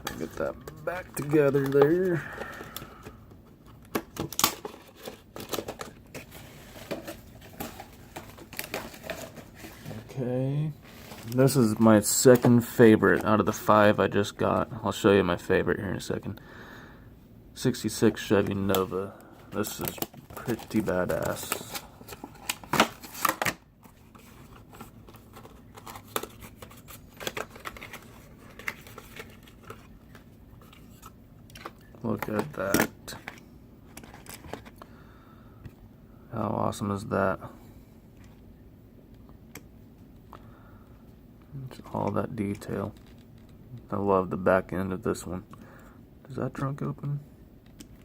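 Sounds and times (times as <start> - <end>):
plastic packaging crinkling: 4.0 - 10.2, 19.5 - 33.3.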